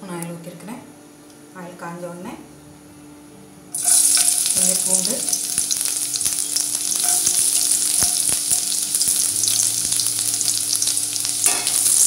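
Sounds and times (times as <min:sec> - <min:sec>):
garlic sizzling in hot oil: 0:03.7 - 0:12.0.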